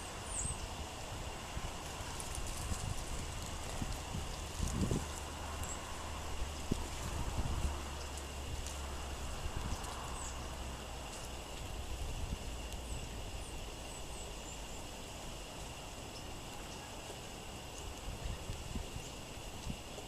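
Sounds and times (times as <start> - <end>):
songbirds chirping: 0.0 - 20.0
wind buffeting microphone: 0.8 - 10.4, 17.6 - 20.0.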